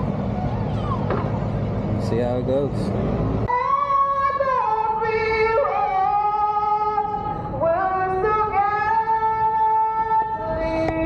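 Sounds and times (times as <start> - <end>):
woman singing slow melody: 3.5 - 11.0.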